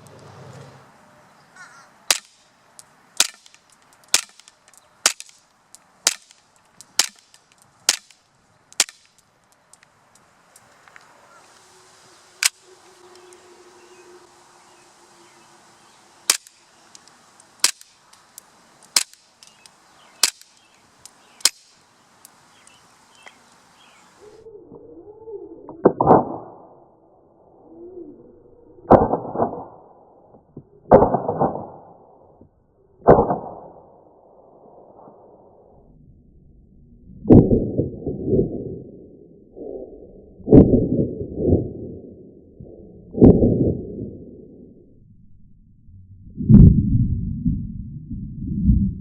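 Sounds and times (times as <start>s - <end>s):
airsoft pistol shots cracking: 2.1s - 2.5s, 3.2s - 5.4s, 6.0s - 8.2s, 8.8s - 9.2s, 16.3s - 16.6s, 17.6s - 18.0s, 18.9s - 20.7s, 21.4s - 21.8s
wavering low tones: 35.8s - 49.0s.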